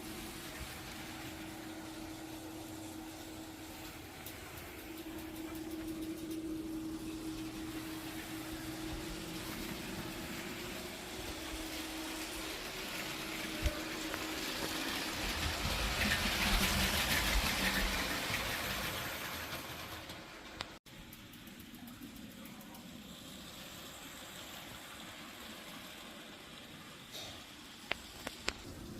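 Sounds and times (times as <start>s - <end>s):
toy train motor hum: 0.0s - 28.9s
wheels on plastic track: 0.0s - 28.9s.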